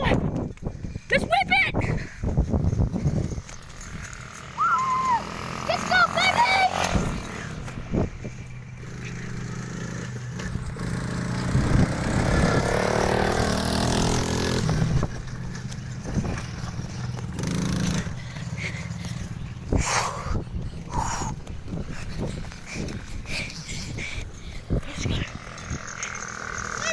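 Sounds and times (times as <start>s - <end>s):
off-road vehicle engine revving: 3.9s - 21.3s, 25.1s - 26.9s.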